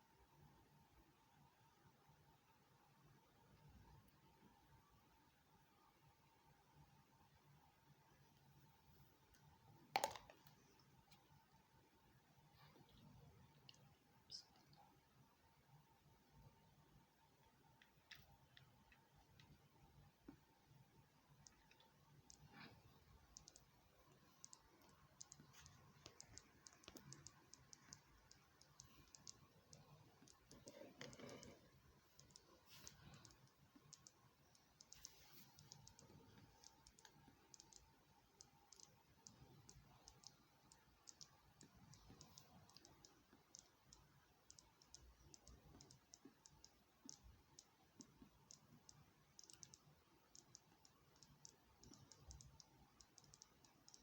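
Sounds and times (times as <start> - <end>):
faint rapid clicking: 17.4 - 54.0.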